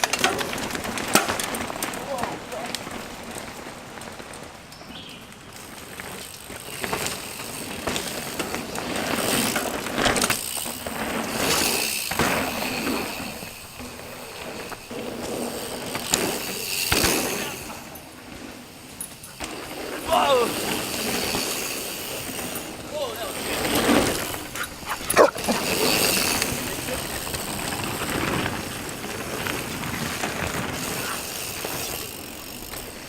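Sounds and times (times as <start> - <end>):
bike clattering and knocking: 0.0 - 4.5, 5.7 - 33.0
bike tyres rolling over dirt: 0.0 - 33.0.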